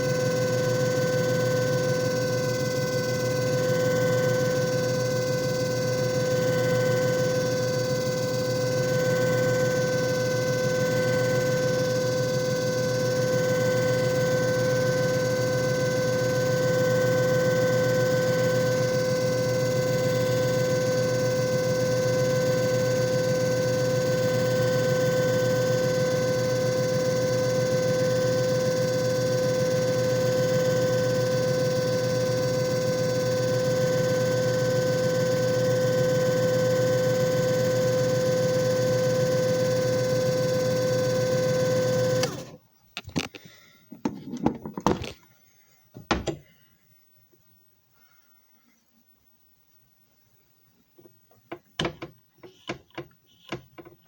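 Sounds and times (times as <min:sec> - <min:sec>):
machine motor hum and whine: 0:00.0 - 0:43.4.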